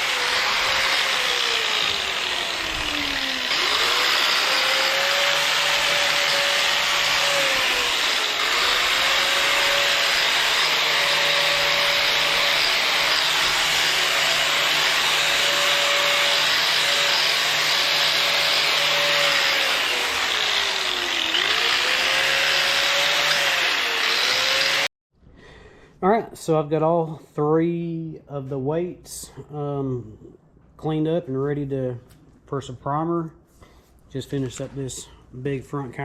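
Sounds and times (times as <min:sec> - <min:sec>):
wire wheel scrubbing metal: 0:00.0 - 0:24.9.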